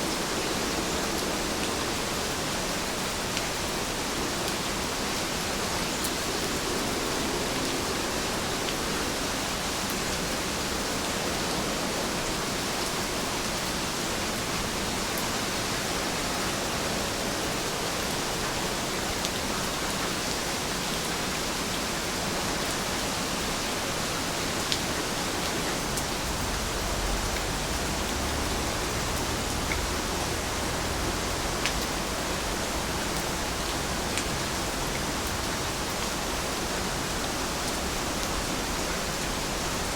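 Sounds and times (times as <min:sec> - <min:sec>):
rain falling: 0:00.0 - 0:39.9
rain drop ticks: 0:31.6 - 0:31.9.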